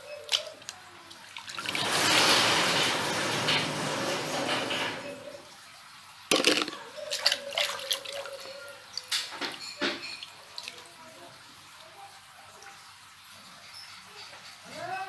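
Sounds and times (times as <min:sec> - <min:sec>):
water splashing in a bucket: 0:00.0 - 0:02.8, 0:06.1 - 0:13.6
small knocks of plastic toys: 0:06.3 - 0:06.8.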